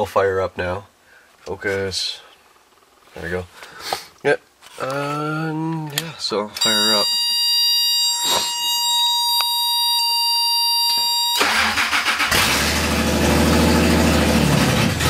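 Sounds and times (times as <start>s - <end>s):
warning buzzer tone: 6.6s - 12.0s
car engine running: 11.5s - 15.0s.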